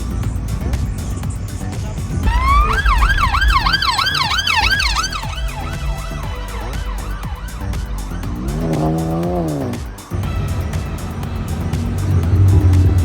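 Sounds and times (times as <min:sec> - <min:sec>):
steady low rumble: 0:00.0 - 0:13.0
emergency vehicle siren: 0:02.2 - 0:09.6
lower pitched rising and falling sound: 0:02.2 - 0:09.9.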